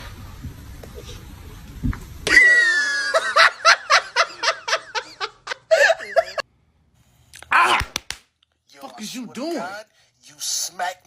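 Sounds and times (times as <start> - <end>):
person laughing high-pitched: 2.3 - 6.4.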